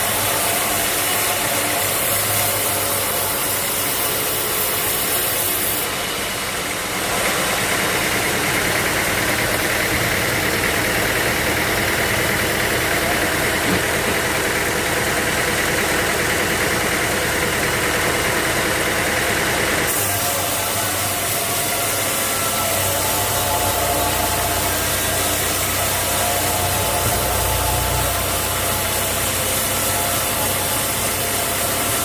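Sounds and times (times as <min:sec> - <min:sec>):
sawmill machinery running: 0:00.0 - 0:32.0
harsh high-pitched machine note: 0:19.9 - 0:32.0.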